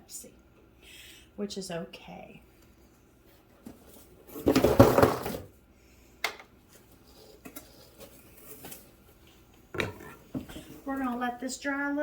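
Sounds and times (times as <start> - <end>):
objects clattering on a tabletop: 9.7 - 10.8.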